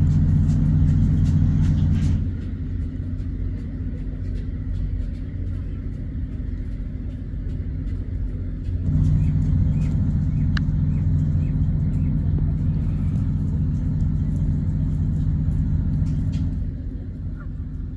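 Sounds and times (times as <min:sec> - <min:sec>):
low rumble: 0:00.0 - 0:17.9.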